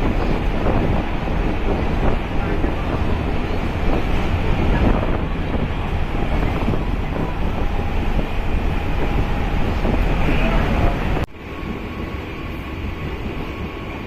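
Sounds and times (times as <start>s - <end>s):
train rumbling along track: 0.0s - 14.0s
wind buffeting microphone: 0.0s - 14.0s.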